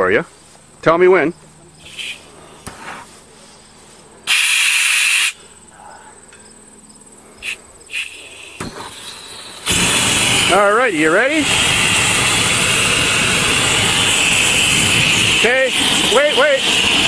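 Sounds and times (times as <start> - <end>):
faint insect buzz: 0.2 - 9.7
gas torch hissing: 1.8 - 3.1, 4.2 - 5.4, 7.4 - 17.0.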